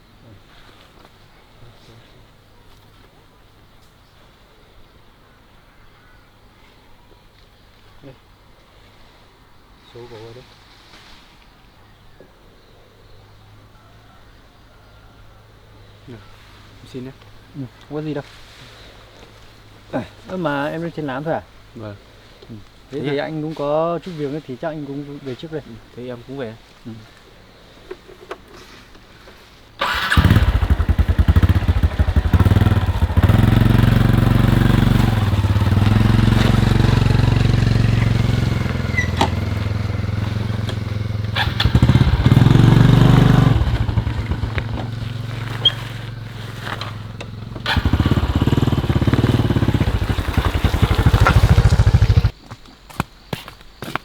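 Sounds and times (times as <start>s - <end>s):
motorbike engine revving: 29.8s - 52.3s.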